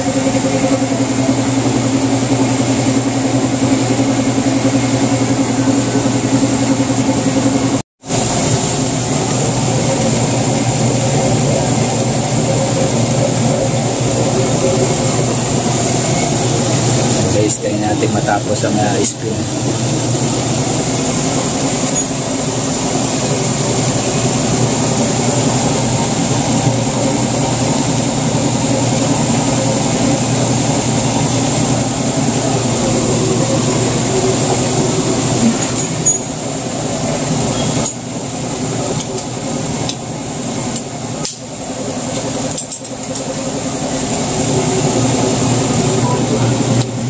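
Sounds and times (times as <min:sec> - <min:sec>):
washing machine spinning: 0:00.0 - 0:47.0.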